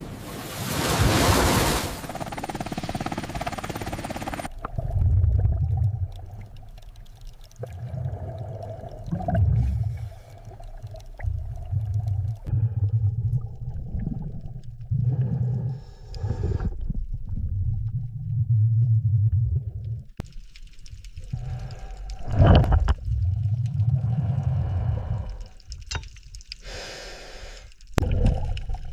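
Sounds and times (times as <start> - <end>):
muffled underwater rumbles: 4.5 - 20.3, 21.2 - 25.7.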